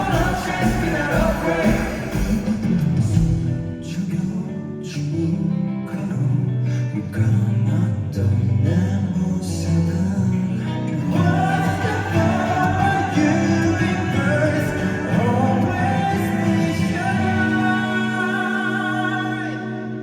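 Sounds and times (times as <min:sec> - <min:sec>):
live rock band with singing: 0:00.0 - 0:20.0.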